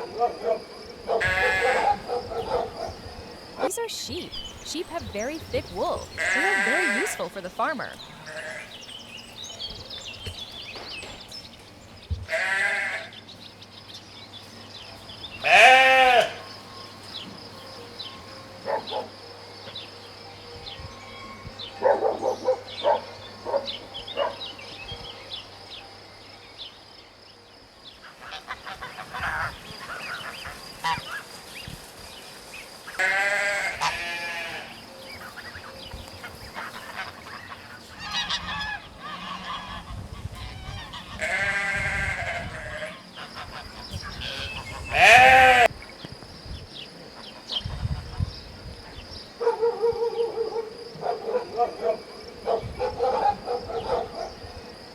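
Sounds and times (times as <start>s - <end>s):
sheep bleating: 1.2s - 2.0s, 5.4s - 7.3s, 7.9s - 8.8s, 12.3s - 13.2s, 15.4s - 16.4s, 33.0s - 34.8s, 41.1s - 43.0s, 44.2s - 45.7s.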